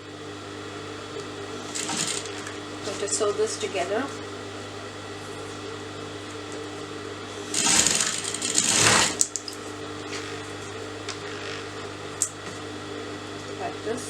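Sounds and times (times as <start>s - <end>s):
sewing machine stitching: 1.6s - 2.6s, 7.5s - 9.2s.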